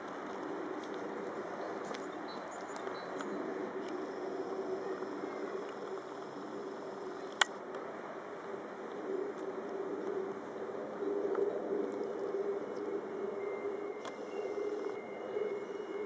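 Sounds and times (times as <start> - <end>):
electric train humming: 11.5 - 16.0.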